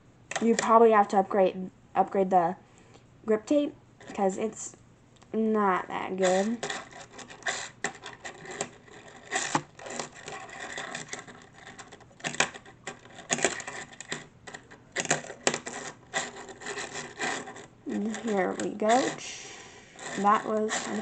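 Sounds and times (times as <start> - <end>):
fingerboard wheels rolling: 6.2 - 21.0.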